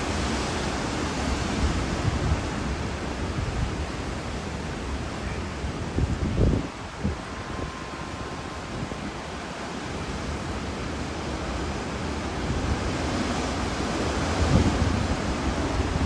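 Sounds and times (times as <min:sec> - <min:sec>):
wind buffeting microphone: 0:01.2 - 0:16.0
storm wind rushing: 0:05.5 - 0:11.4, 0:12.4 - 0:16.0.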